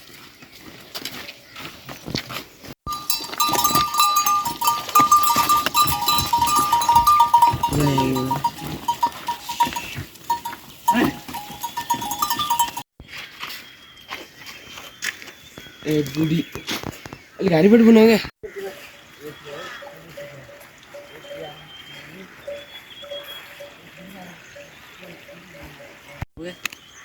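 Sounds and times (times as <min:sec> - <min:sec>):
high-pitched trilling with clicks: 0:02.9 - 0:12.8.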